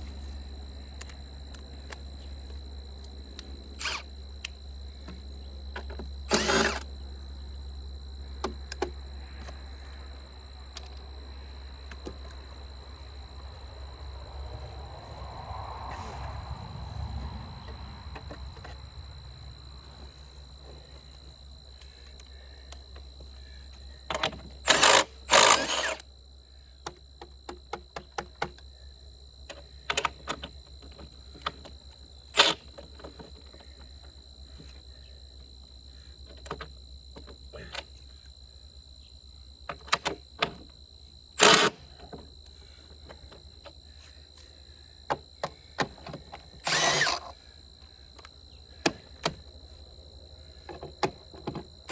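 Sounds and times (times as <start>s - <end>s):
power tool bursts: 3.8s - 4.1s, 6.3s - 6.9s, 24.6s - 26.0s, 41.4s - 41.9s, 46.6s - 47.3s.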